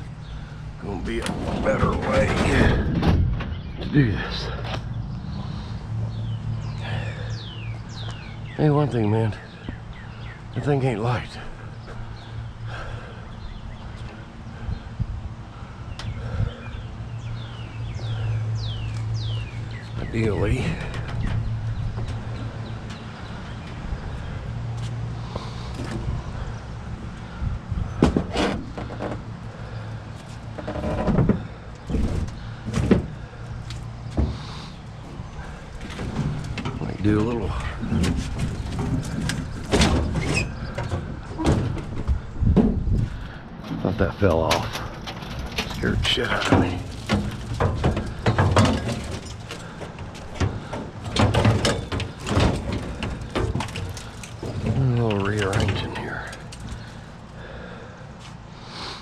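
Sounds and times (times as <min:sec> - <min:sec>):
scrap metal scraping and clanking: 0:00.8 - 0:04.8, 0:43.0 - 0:57.2
scrap metal clunks and scrapes: 0:00.9 - 0:04.9, 0:17.5 - 0:23.8, 0:27.1 - 0:57.2.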